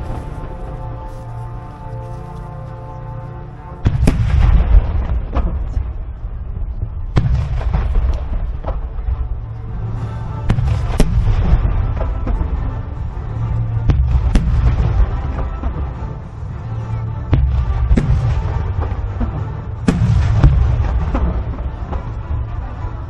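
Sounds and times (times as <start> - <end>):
music: 0.0 - 23.0
firework shells booming: 17.3 - 22.1.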